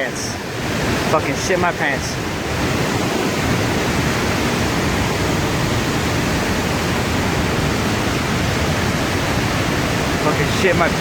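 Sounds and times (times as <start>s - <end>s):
flood water rushing: 0.0s - 11.0s.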